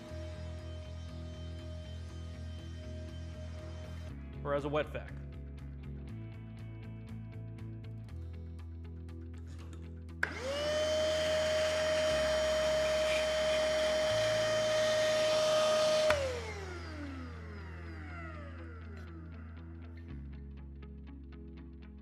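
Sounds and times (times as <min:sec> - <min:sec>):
vacuum motor whine: 0:00.0 - 0:04.2, 0:10.2 - 0:19.4
vacuum switch click: 0:11.2 - 0:17.0.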